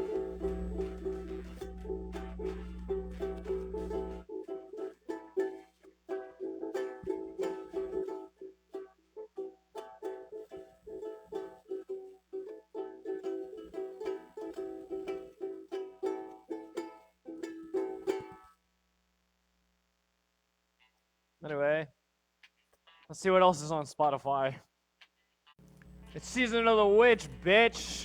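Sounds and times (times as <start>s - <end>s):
acoustic stringed instrument strumming: 0.0s - 18.5s, 25.6s - 28.0s.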